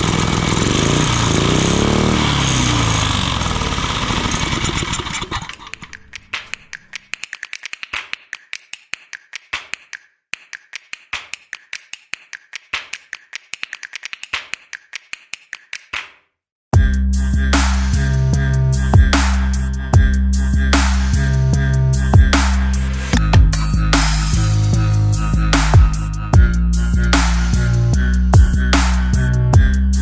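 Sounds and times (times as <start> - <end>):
small engine running: 0.0 - 6.2
sharp clicks and taps: 5.5 - 16.2.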